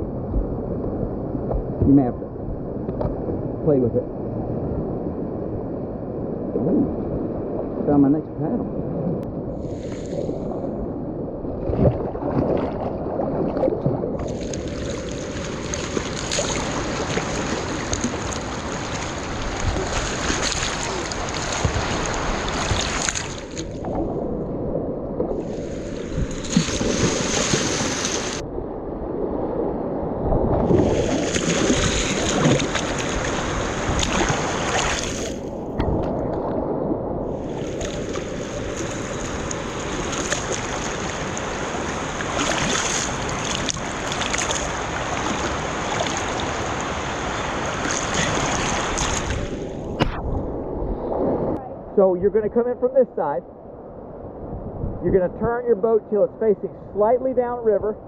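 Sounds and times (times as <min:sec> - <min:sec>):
splashing water: 0:11.6 - 0:24.0, 0:25.4 - 0:28.4, 0:30.5 - 0:36.5, 0:37.4 - 0:50.2
river rapid rushing: 0:14.3 - 0:23.6, 0:37.4 - 0:49.6.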